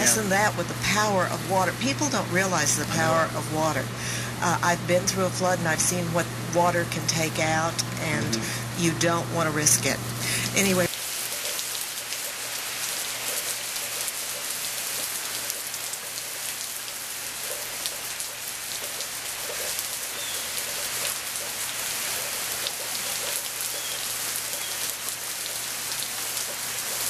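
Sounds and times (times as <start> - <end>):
rain pattering on surfaces: 10.8 - 27.0.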